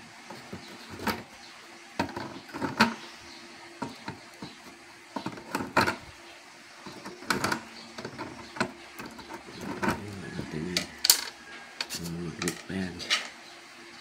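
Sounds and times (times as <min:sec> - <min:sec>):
clicks and knocks of tools handling parts: 0:06.8 - 0:10.0, 0:10.8 - 0:13.4.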